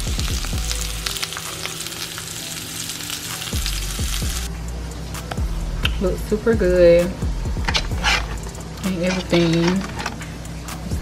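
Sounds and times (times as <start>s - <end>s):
food sizzling and crackling: 0.0s - 4.5s, 7.7s - 11.0s.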